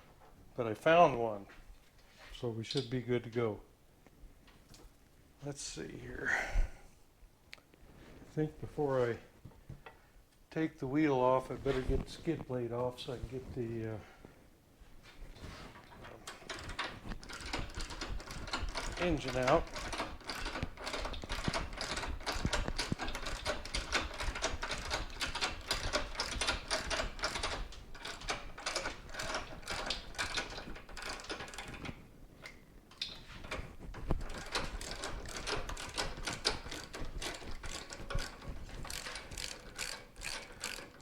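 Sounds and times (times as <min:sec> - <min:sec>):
ratchet wrench clicking: 0:34.2 - 0:41.0.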